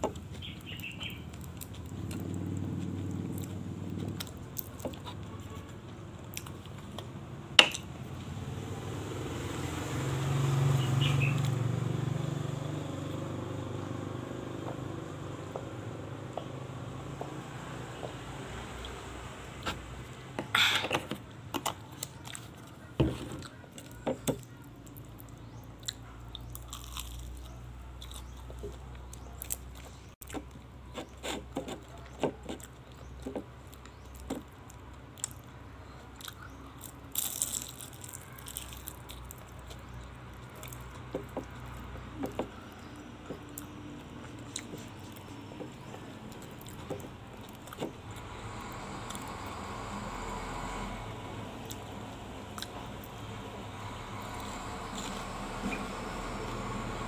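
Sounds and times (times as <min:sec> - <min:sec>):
crunching and chewing fried food: 0:00.0 - 0:07.8, 0:18.7 - 0:50.9, 0:51.5 - 0:57.0.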